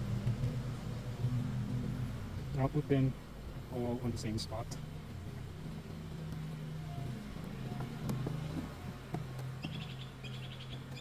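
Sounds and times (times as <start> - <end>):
steady low hum: 0.0 - 11.0
small bird chirping in trills: 9.5 - 11.0.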